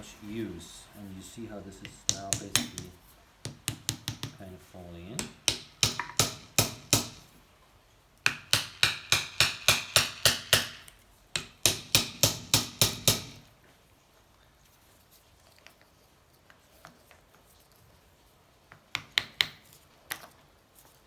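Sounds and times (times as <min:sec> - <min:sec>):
hammer striking metal: 0:02.1 - 0:04.4, 0:05.2 - 0:07.2, 0:08.3 - 0:10.8, 0:11.4 - 0:13.4.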